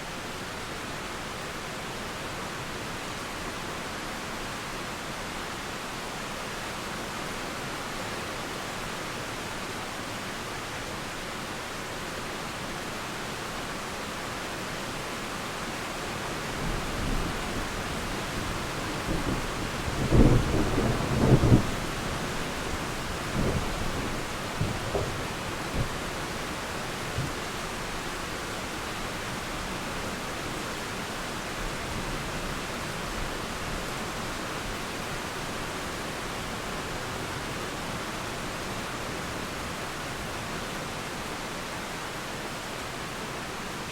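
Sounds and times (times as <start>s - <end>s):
steady rain hiss: 0.0s - 43.9s
thunder rolling and crackling: 18.4s - 26.3s.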